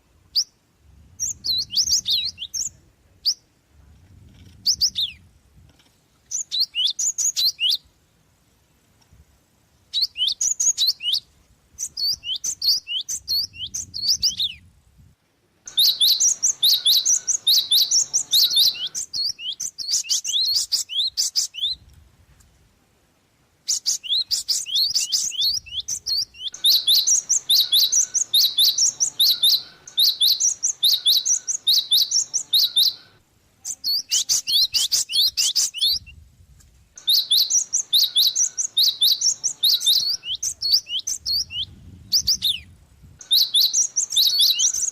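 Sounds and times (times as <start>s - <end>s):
sparrow chirping: 0.3s - 3.4s, 6.3s - 7.8s, 9.9s - 14.6s, 15.7s - 21.8s, 23.7s - 36.1s, 37.0s - 44.9s.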